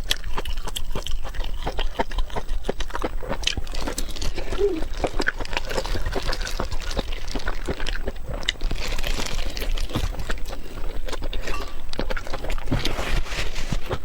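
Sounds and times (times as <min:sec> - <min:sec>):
wet chewing mouth sounds: 0:00.0 - 0:14.0.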